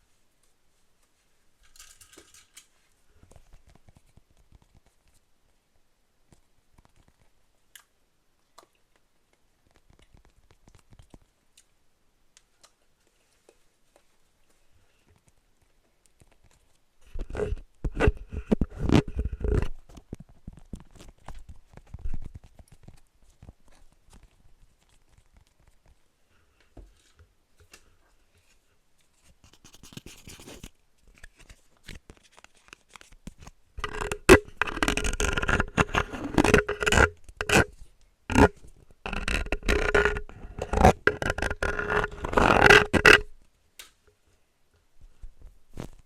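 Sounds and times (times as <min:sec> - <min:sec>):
close scraping and scratching: 0:16.1 - 0:43.4, 0:45.0 - 0:46.0.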